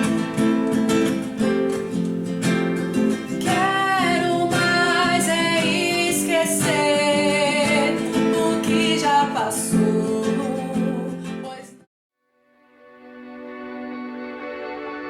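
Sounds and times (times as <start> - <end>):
strummed acoustic guitar: 0.0 - 11.8
person singing: 3.4 - 11.9.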